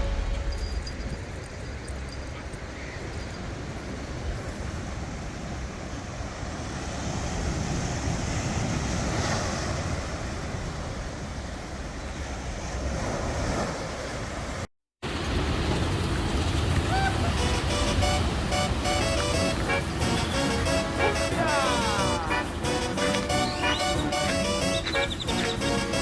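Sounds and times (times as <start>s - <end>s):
ocean surf washing in: 15.1s - 26.0s.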